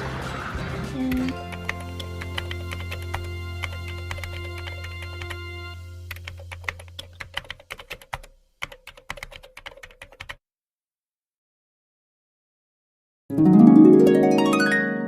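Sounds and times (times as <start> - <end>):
rapid sharp clicks: 1.4 - 5.4, 6.1 - 10.4.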